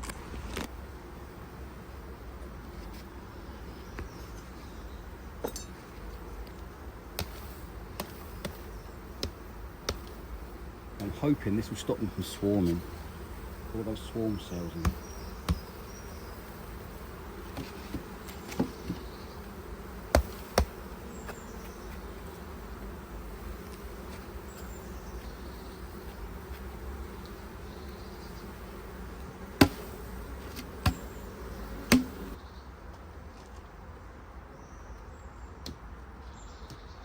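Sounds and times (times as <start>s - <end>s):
honeybees buzzing: 0.0s - 36.9s
sharp knocks: 31.9s - 32.2s.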